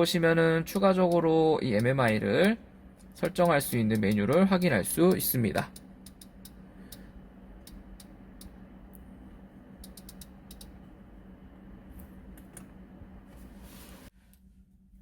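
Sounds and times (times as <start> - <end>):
steady low hum: 0.0 - 15.0
rotary controller and button clicks: 0.7 - 8.6, 9.8 - 10.8.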